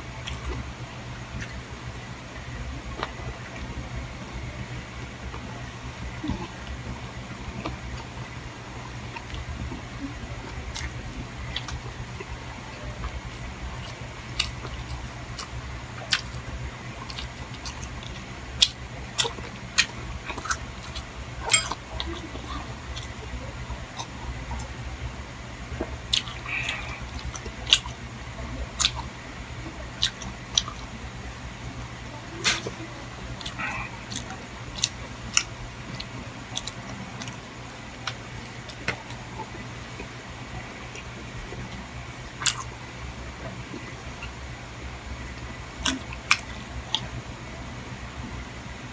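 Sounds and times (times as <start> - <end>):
steady low hum: 0.0 - 48.9
person chewing: 0.2 - 0.6, 1.2 - 1.6, 5.0 - 6.9, 8.8 - 23.2, 26.1 - 29.1, 29.9 - 30.9, 32.4 - 40.2, 42.3 - 42.7, 45.8 - 47.2.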